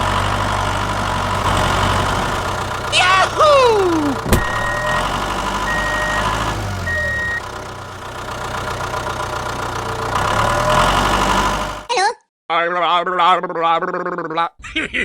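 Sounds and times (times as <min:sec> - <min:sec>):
small engine running: 0:00.0 - 0:11.9
short high beeps: 0:04.4 - 0:05.0, 0:06.9 - 0:07.4.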